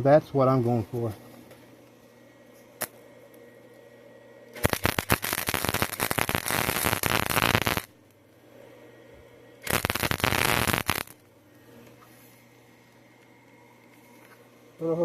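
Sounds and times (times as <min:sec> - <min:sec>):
arc welder crackling sizzle: 0:00.0 - 0:03.8, 0:04.4 - 0:08.4, 0:09.6 - 0:12.0.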